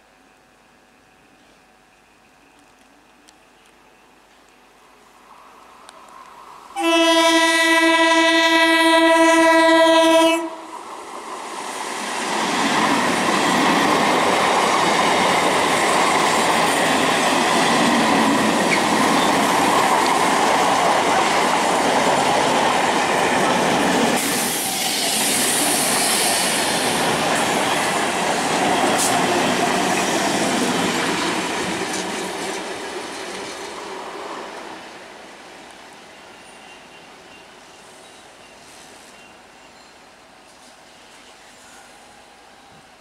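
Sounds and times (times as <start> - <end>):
train wheels on rails: 5.3 - 43.0
train horn blast: 6.8 - 10.7.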